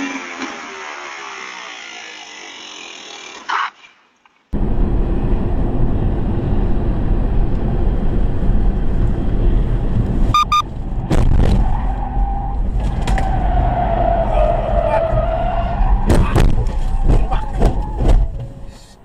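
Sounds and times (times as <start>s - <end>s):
car road and engine rumble: 4.6s - 19.0s
short beeps: 10.4s - 10.7s.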